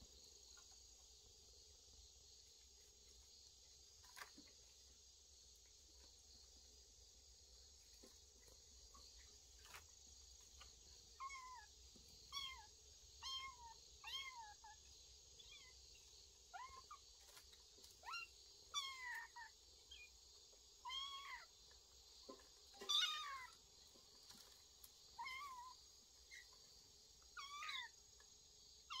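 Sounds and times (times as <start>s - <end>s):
kittens meowing: 11.2s - 11.7s, 12.3s - 14.7s, 18.0s - 20.1s, 20.8s - 21.5s, 22.8s - 23.6s, 25.2s - 26.4s, 27.3s - 28.0s.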